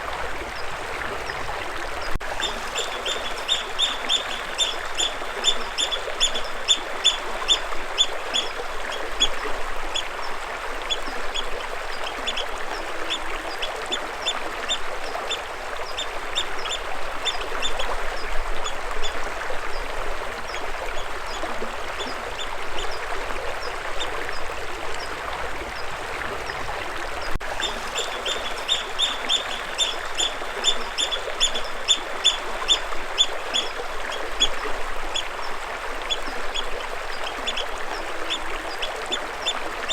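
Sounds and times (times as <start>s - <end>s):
flowing water: 0.0s - 39.9s
bird chirping: 2.4s - 7.6s, 27.6s - 32.4s.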